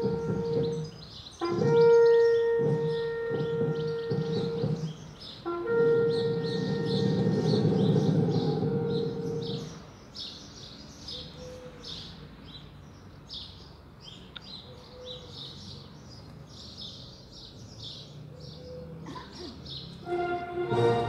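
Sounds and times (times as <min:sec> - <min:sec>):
music: 0:00.0 - 0:00.8, 0:20.0 - 0:21.0
small birds chirping: 0:00.0 - 0:20.1.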